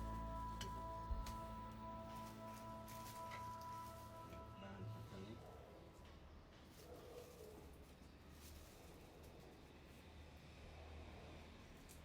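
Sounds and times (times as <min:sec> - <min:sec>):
faint low hum: 0:00.0 - 0:07.2.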